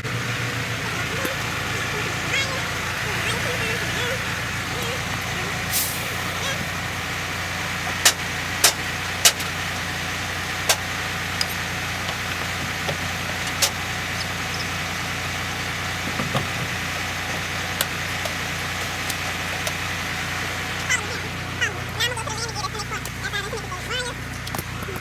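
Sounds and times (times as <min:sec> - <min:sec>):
truck engine idling: 0:00.0 - 0:25.0
sharp clicks or knocks: 0:08.0 - 0:09.6.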